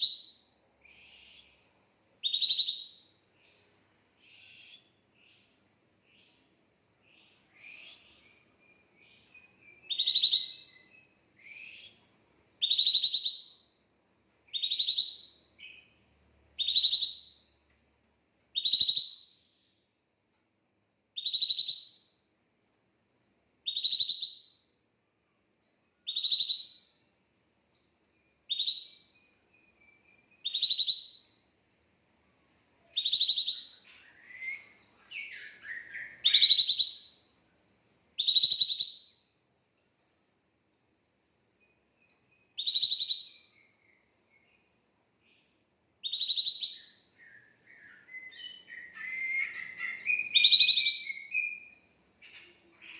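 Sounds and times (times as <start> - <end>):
thin whistled bird notes: 7.1 - 13.7, 27.7 - 31.4, 32.9 - 37.2, 41.6 - 52.9
songbird trilling call: 33.0 - 37.2, 46.0 - 51.8.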